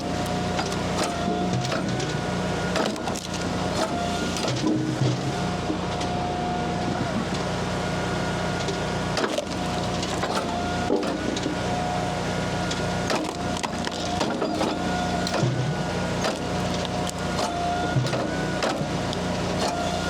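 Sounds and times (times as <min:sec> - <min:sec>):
wood cracking and splintering: 0:00.0 - 0:04.8, 0:09.1 - 0:11.6, 0:12.6 - 0:20.0
hydraulic log splitter whine: 0:00.0 - 0:20.0.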